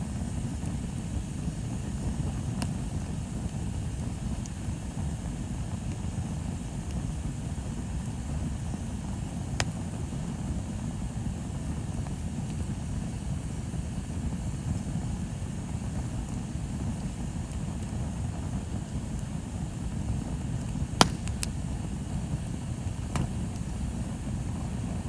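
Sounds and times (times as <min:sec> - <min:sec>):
bonfire rumbling: 0:00.0 - 0:25.0
fire crackling pop: 0:00.0 - 0:25.0.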